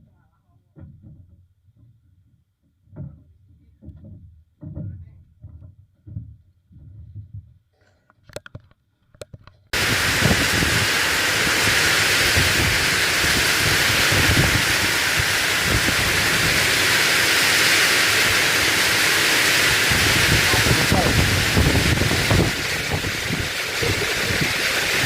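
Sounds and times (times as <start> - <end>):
heavy rain hissing: 9.8 - 25.0.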